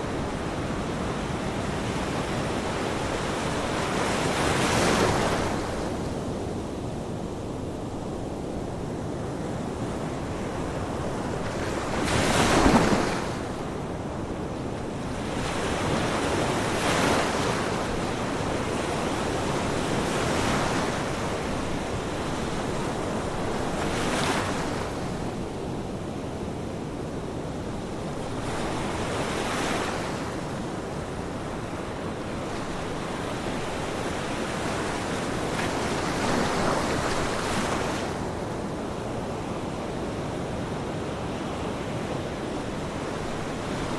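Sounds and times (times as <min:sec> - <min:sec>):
ocean waves breaking: 0:11.1 - 0:13.8, 0:31.5 - 0:38.4.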